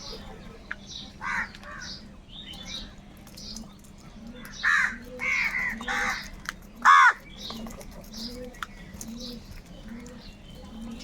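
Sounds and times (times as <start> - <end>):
crows cawing: 1.2 - 2.0, 4.6 - 6.2, 6.8 - 7.2.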